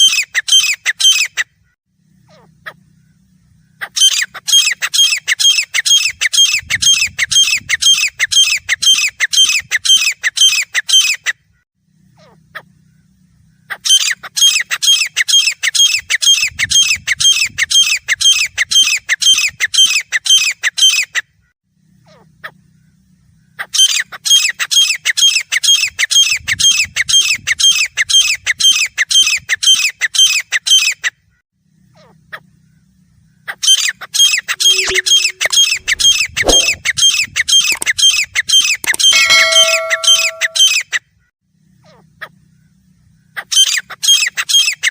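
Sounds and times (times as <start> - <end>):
francolin calling harsh notes: 34.6 - 36.8, 38.9 - 40.8.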